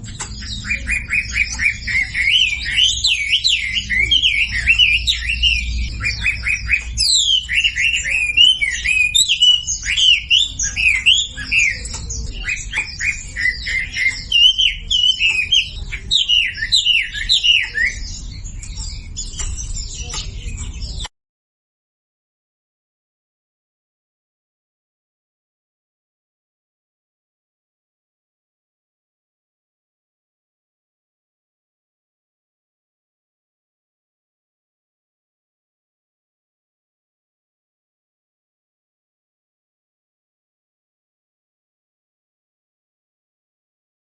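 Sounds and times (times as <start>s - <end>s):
bird chirps and trills: 0.0s - 21.1s.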